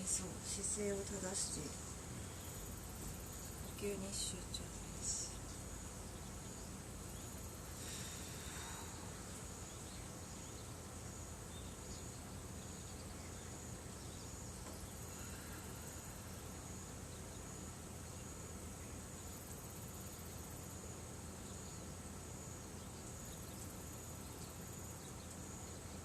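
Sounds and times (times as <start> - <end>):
insects chirring: 0.0 - 26.0
low background hum: 0.0 - 26.0.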